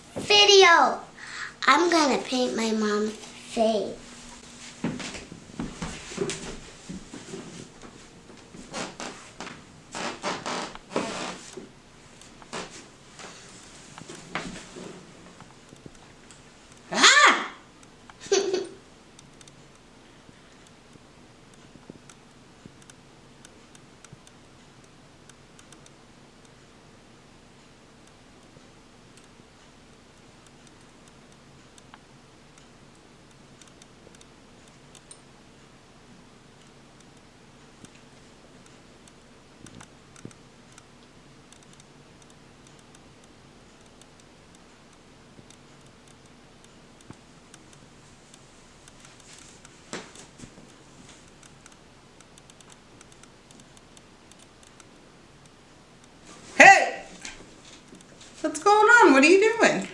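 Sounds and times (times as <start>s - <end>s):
low steady hum: 0.0s - 59.9s
small clicks and taps: 30.2s - 35.3s, 36.6s - 56.2s.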